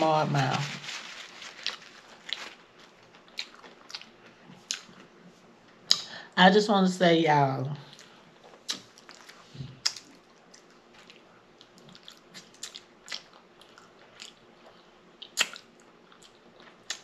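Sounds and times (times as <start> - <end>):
person chewing: 1.5 - 5.4, 7.9 - 17.0.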